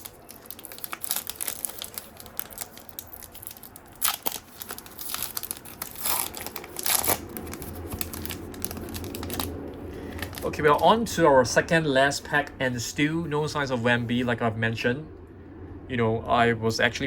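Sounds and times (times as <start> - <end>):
foil wrapper tearing and crinkling: 0.0 - 10.8.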